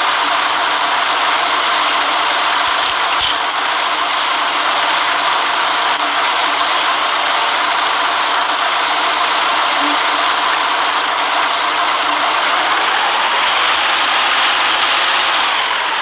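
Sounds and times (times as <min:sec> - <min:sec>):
faint hum: 0:00.0 - 0:04.0, 0:11.7 - 0:16.0
bus road and engine noise: 0:00.0 - 0:16.0.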